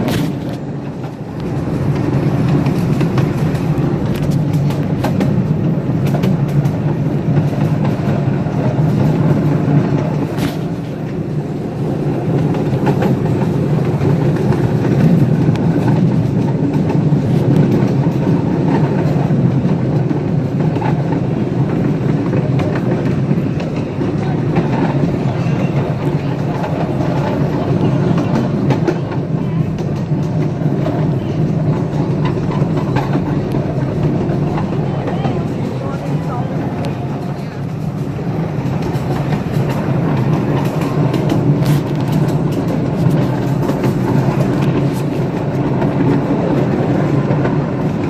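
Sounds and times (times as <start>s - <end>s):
train rumbling along track: 0.0s - 48.0s
wheels clicking over rails: 0.0s - 48.0s.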